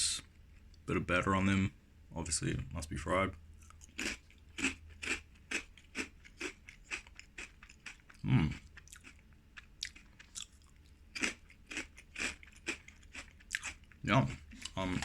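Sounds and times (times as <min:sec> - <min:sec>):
crunchy chewing: 0:03.6 - 0:15.0
deep mouth sound: 0:08.2 - 0:08.6.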